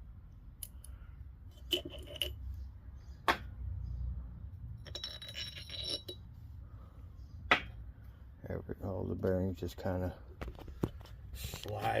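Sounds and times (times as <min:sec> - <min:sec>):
metal bearings clinking on shaft: 0:01.5 - 0:02.6, 0:04.8 - 0:06.4.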